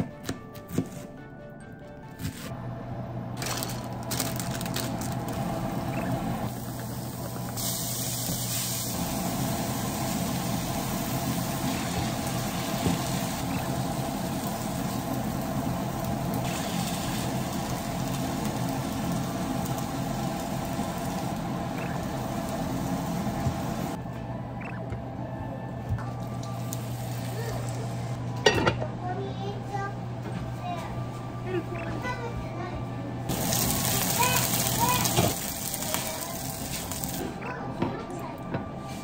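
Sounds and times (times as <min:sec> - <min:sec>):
food sizzling in a frying pan: 0:06.5 - 0:24.0, 0:33.3 - 0:37.3.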